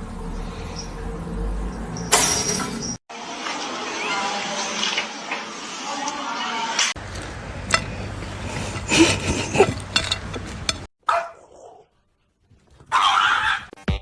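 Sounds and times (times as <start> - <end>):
clicks and handling noise: 7.0 - 10.9
pet animal crying and yelping: 12.9 - 13.7.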